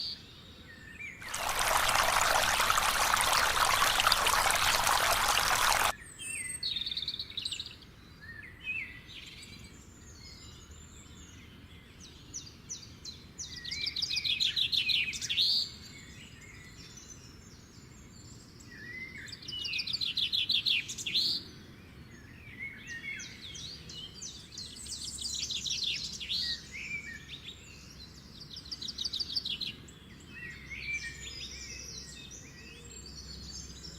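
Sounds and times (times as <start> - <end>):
water spraying: 1.2 - 5.9.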